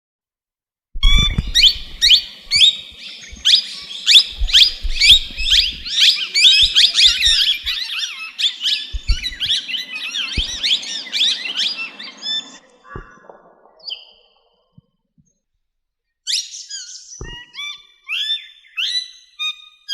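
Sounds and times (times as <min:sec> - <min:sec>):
low thuds: 0:01.0 - 0:07.8, 0:08.9 - 0:09.6, 0:10.4 - 0:10.9
parrot squawking: 0:01.0 - 0:12.6.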